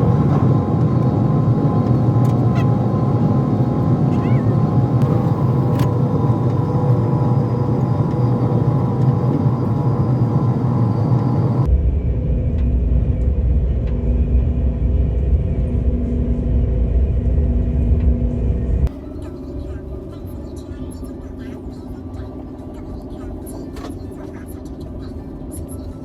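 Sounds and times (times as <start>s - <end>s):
passenger train rumbling: 0.0s - 26.0s.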